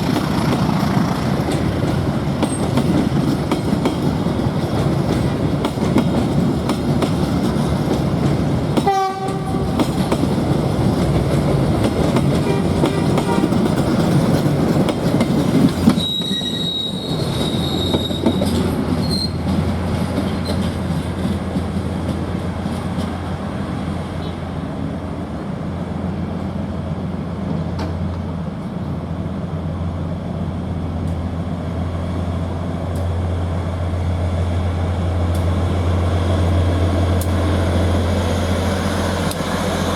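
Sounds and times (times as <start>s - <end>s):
train wheels clattering on rails: 0.0s - 24.4s, 27.4s - 29.0s, 34.3s - 39.9s
low train hum: 0.0s - 39.9s
train horn blast: 8.8s - 9.8s, 12.4s - 13.7s
train wheels squealing: 15.8s - 19.6s, 20.3s - 20.7s.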